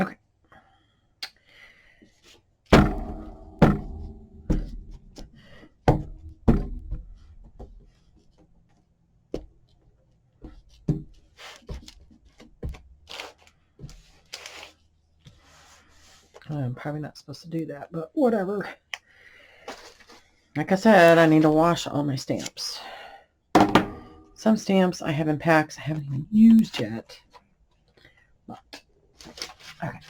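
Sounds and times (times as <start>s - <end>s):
paper rustling: 11.4s - 16.4s, 19.7s - 20.3s, 29.2s - 30.0s
stamps thunking on tabletop: 23.6s - 24.1s.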